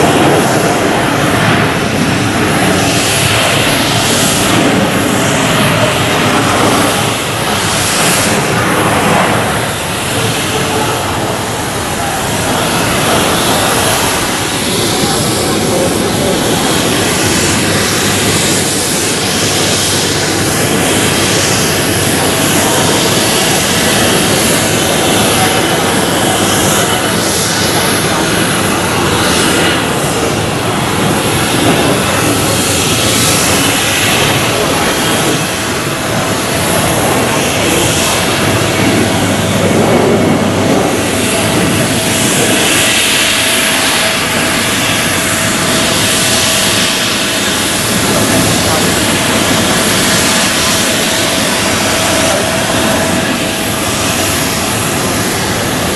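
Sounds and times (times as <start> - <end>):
jet engines roaring: 0.0 - 55.9.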